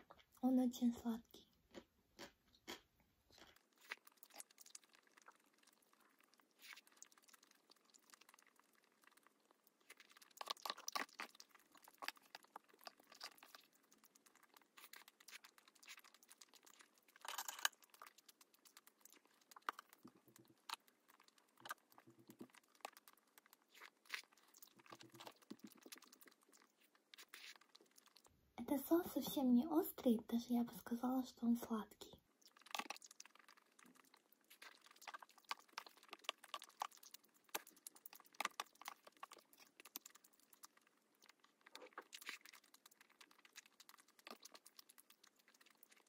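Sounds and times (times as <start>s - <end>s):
chewing and mouth smacks: 1.5s - 28.3s, 32.3s - 46.0s.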